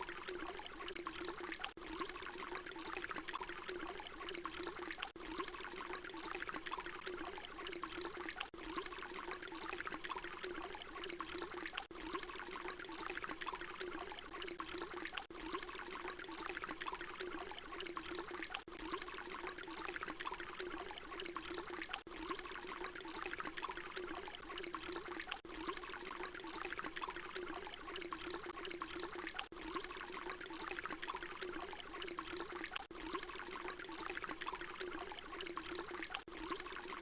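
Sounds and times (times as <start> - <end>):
water pouring: 0.0 - 37.0.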